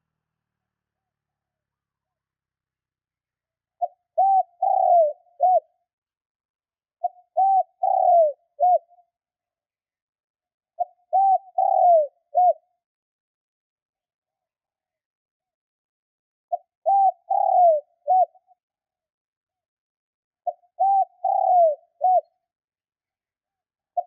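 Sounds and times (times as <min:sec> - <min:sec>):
dove cooing: 0:03.8 - 0:05.8, 0:07.0 - 0:09.0, 0:10.8 - 0:12.6, 0:16.5 - 0:18.5, 0:20.4 - 0:22.3.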